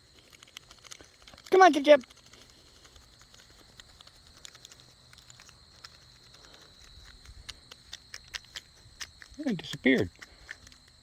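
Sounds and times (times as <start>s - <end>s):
faint ticks and clicks: 0.0s - 11.0s.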